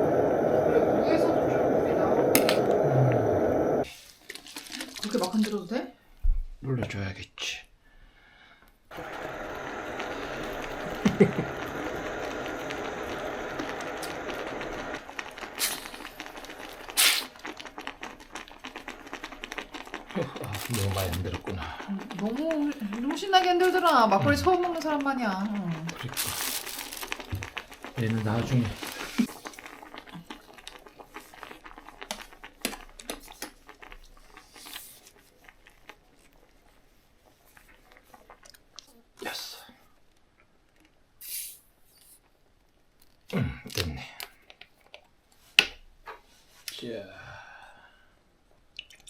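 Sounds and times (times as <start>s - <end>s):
gas hissing from bottle: 0.0s - 3.9s, 8.9s - 17.5s, 25.8s - 29.3s, 41.2s - 42.2s
steady fizzing hiss: 0.0s - 6.1s, 8.7s - 45.6s
small objects clicking and crinkling: 4.2s - 5.7s, 15.5s - 36.5s
short hiss: 13.1s - 16.2s, 16.8s - 17.4s, 41.2s - 42.2s.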